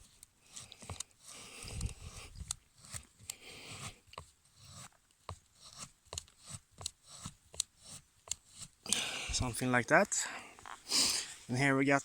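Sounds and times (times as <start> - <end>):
knife scraping wooden stick: 0.0 - 8.9.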